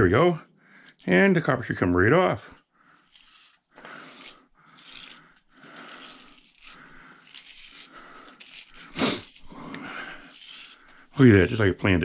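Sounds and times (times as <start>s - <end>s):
scraping and crinkling metal: 2.9s - 12.0s.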